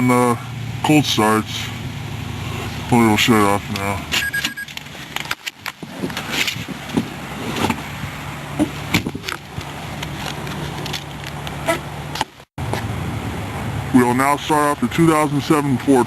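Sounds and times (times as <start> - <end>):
car engine shutting off: 0.0 - 5.3.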